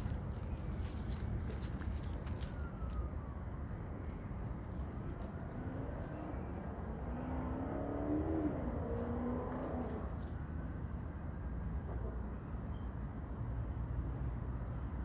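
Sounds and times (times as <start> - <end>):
vehicle engine: 0.0 - 12.6
low outdoor rumble: 0.0 - 15.0.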